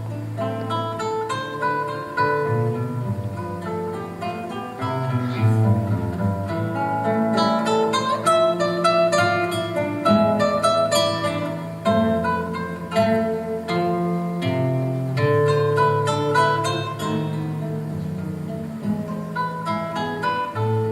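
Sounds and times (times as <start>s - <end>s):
acoustic guitars playing: 0.0s - 20.9s.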